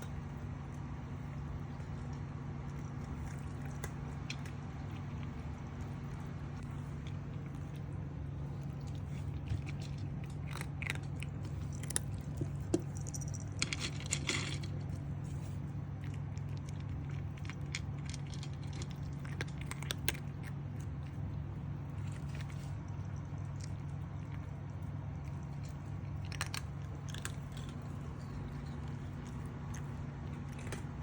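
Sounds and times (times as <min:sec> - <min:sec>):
cat chewing and eating: 0:00.0 - 0:31.0
steady low hum: 0:00.0 - 0:31.0.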